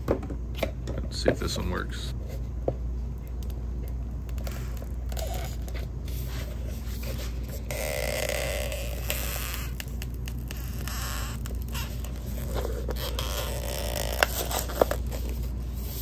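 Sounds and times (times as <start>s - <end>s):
steady low hum: 0.0s - 16.0s
epoxy scraping in plastic cup: 4.4s - 15.5s.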